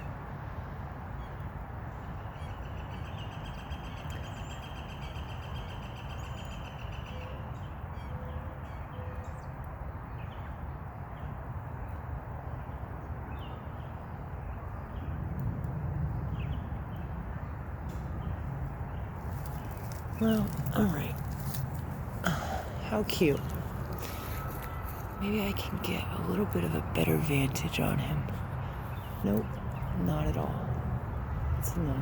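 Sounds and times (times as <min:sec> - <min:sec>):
low background rumble: 0:15.5 - 0:32.0
small birds calling: 0:18.2 - 0:32.0.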